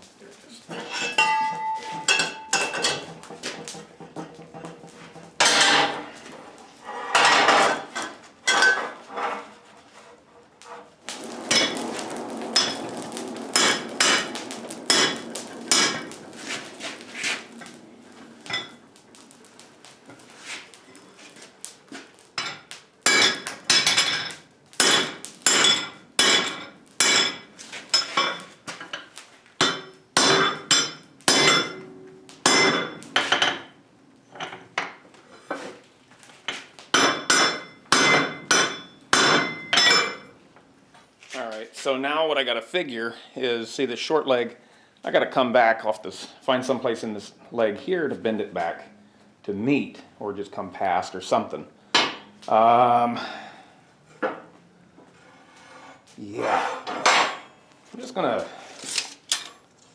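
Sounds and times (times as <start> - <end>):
hammer striking metal on anvil: 14.9 - 16.1, 22.4 - 27.4, 29.6 - 33.6, 37.0 - 40.2.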